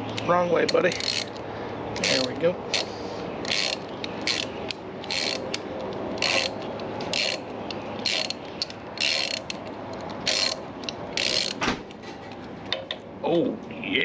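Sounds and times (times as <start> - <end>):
socket ratchet clicking: 0.0 - 1.4, 2.0 - 11.6.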